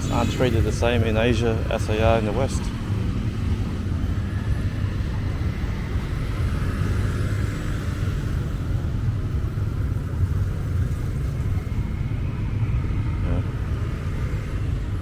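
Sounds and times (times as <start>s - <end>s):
low outdoor rumble: 0.0s - 6.6s.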